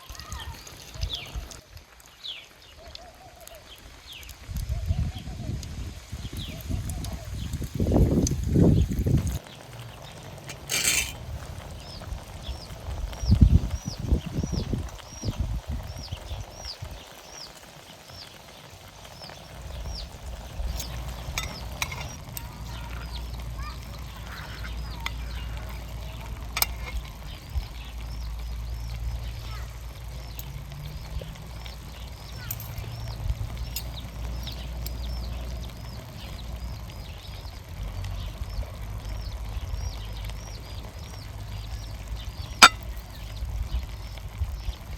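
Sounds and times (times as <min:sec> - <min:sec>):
low outdoor rumble: 0:04.4 - 0:44.9
bird chirping: 0:11.8 - 0:44.9.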